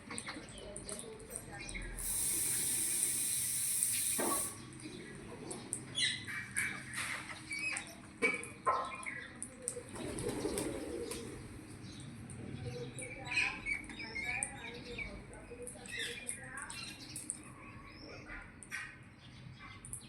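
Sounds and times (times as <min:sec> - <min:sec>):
steady high hiss: 0:02.0 - 0:04.6.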